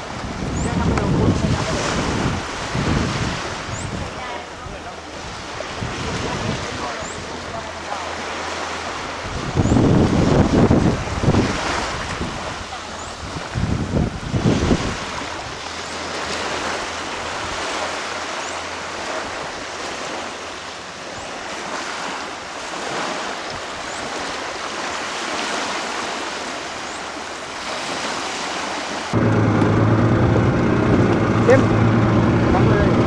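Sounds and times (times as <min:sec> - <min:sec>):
wind buffeting microphone: 0:00.0 - 0:07.8, 0:08.4 - 0:18.3, 0:29.1 - 0:33.0
sea waves washing: 0:00.0 - 0:33.0.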